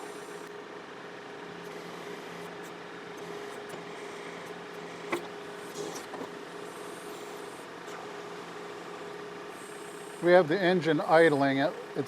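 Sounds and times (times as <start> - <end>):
tractor diesel engine idling: 6.3 - 12.0.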